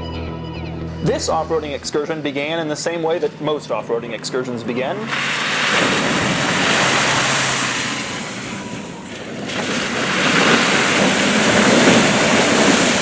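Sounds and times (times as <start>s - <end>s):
vehicle engine: 0.0s - 13.0s
splashing water and mud: 4.8s - 13.0s.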